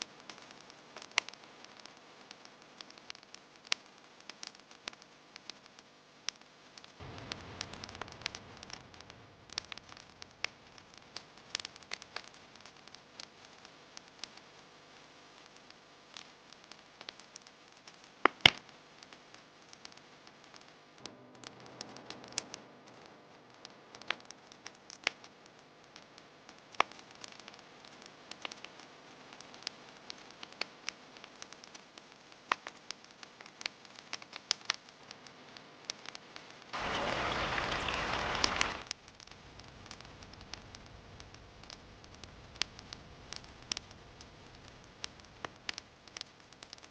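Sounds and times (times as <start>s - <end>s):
campfire crackling and popping: 0.0s - 46.9s
loud even hiss: 7.0s - 10.0s, 36.8s - 38.9s.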